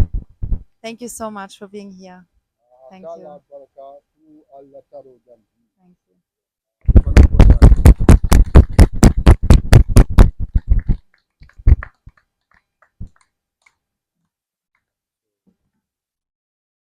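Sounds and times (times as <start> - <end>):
scattered claps or knocks: 6.9 - 13.8
rapid hand clapping: 7.0 - 13.8.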